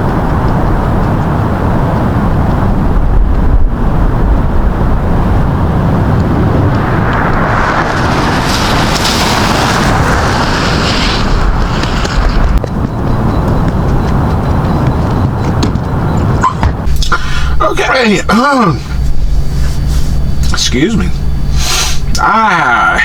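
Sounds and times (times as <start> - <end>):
truck diesel engine rumbling: 0.0 - 23.0
broad hiss: 21.5 - 22.1.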